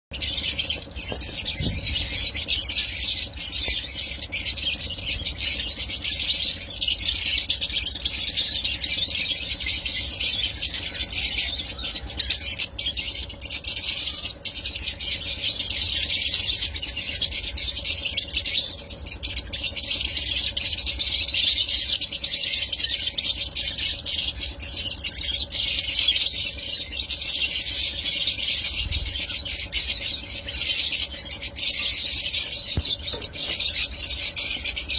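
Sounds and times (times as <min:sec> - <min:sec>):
lovebirds chattering and squealing: 0:00.1 - 0:34.9.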